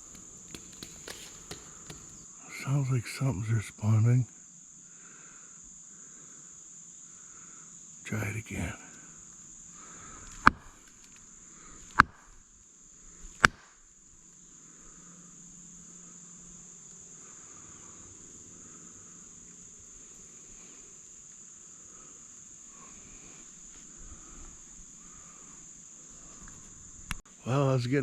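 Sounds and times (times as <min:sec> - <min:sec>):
stick knocking on tree trunk: 0:00.0 - 0:02.2, 0:11.9 - 0:12.2
high insect hiss: 0:00.0 - 0:28.0.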